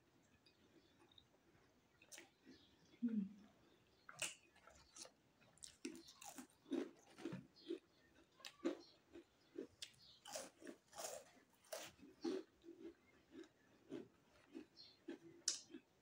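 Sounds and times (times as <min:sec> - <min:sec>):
mouth chewing: 0:00.2 - 0:15.9
crisp snack crunching: 0:04.1 - 0:15.8.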